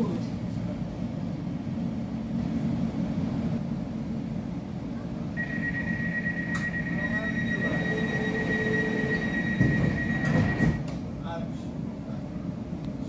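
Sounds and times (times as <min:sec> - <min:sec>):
low rumble of train wheels: 0:00.0 - 0:13.0
high-pitched whine: 0:05.4 - 0:10.8.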